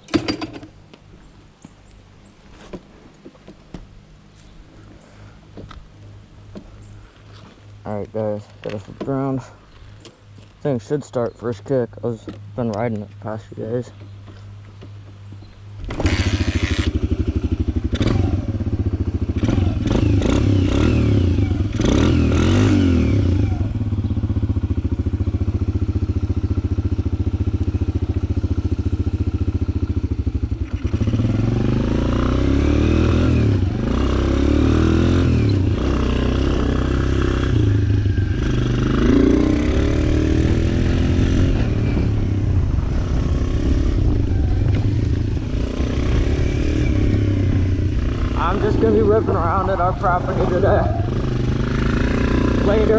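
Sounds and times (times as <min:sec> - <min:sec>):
dirt bike engine revving: 0:15.8 - 0:52.9.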